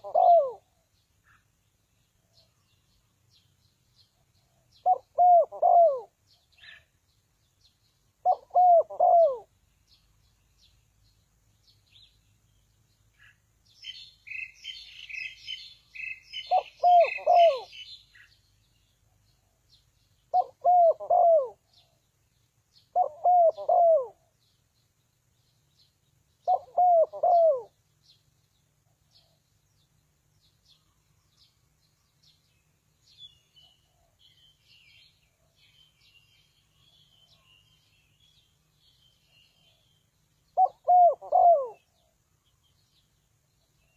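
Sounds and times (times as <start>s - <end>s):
dove cooing: 0.0s - 0.8s, 4.5s - 6.8s, 8.2s - 9.5s, 16.0s - 18.0s, 20.3s - 22.0s, 22.9s - 24.3s, 26.4s - 27.8s, 40.6s - 42.1s
small bird twittering: 13.0s - 18.6s.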